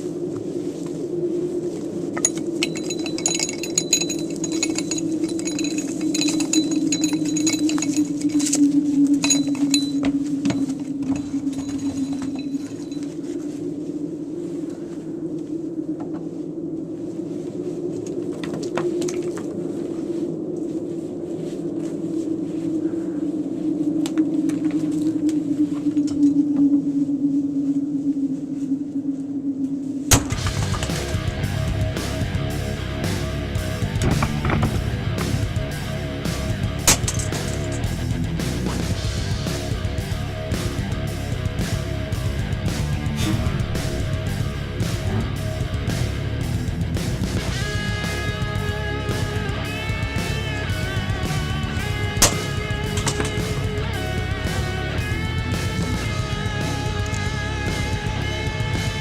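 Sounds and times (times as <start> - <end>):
rapid rattling and clinking: 2.2 - 8.4.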